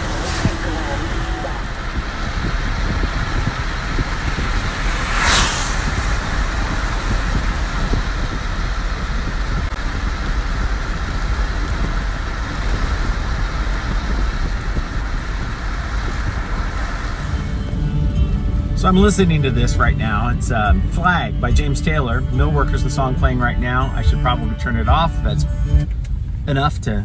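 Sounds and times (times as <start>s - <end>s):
brief louder hiss: 0.0s - 8.8s
car engine and tyre rumble: 0.0s - 27.0s
wet road hiss: 0.0s - 27.0s.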